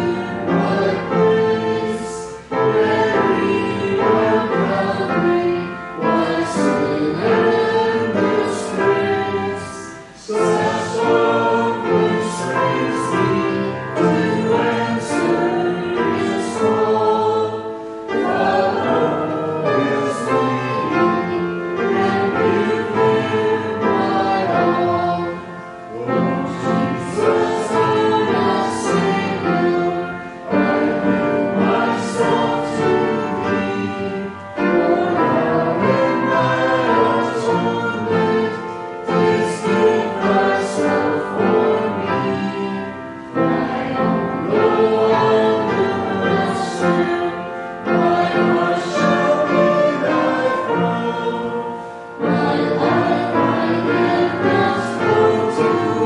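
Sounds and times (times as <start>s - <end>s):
choir singing: 0.0s - 56.0s
singers breathing: 17.6s - 18.1s, 51.7s - 52.2s.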